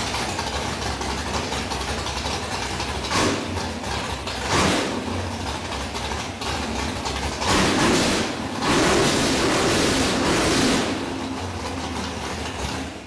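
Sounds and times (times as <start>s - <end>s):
unmuffled car engine revving: 3.1s - 5.7s, 6.4s - 13.0s.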